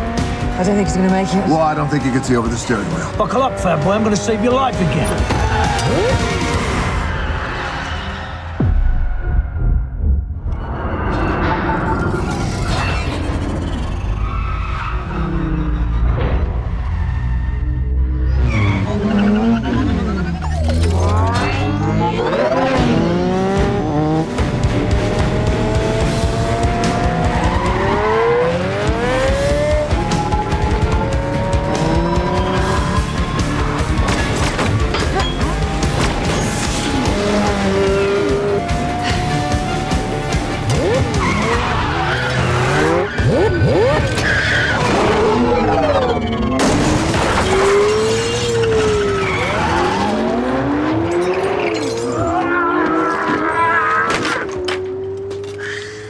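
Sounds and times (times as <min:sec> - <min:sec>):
engines revving hard: 0:00.0 - 0:08.6, 0:18.3 - 0:55.5
action movie music score: 0:00.0 - 0:51.2
tyres squealing and skidding: 0:00.6 - 0:08.7, 0:11.2 - 0:23.3, 0:27.1 - 0:54.7, 0:55.4 - 0:56.0.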